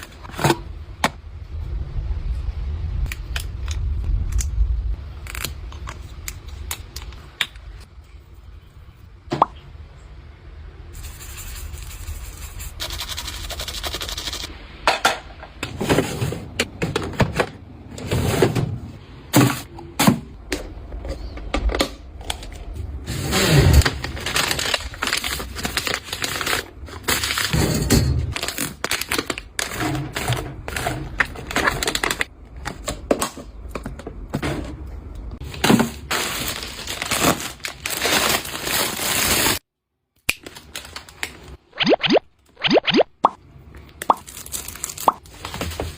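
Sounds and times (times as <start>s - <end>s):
packaging crackling and crinkling: 22.2s - 27.6s, 28.3s - 32.3s, 35.4s - 39.6s, 40.4s - 41.6s, 44.2s - 45.9s.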